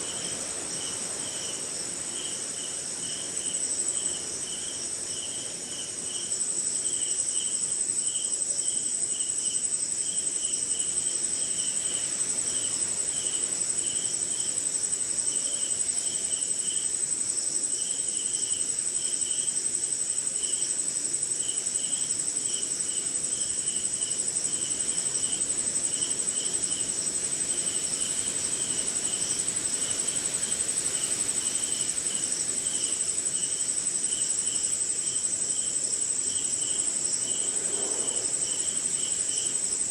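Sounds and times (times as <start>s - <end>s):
high-pitched insect trill: 0.0s - 39.9s
low insect chirping pulses: 9.2s - 39.9s.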